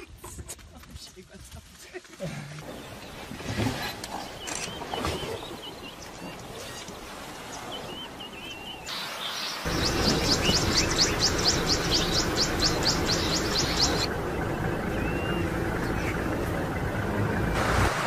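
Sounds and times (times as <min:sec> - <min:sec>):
bird chirping: 0:02.6 - 0:06.9, 0:07.5 - 0:17.0.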